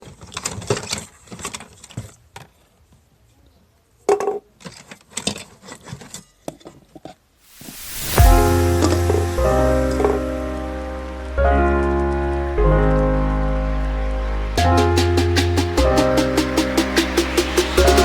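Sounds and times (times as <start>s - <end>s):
rising whoosh: 7.5s - 18.0s
music with held chords: 8.2s - 18.0s.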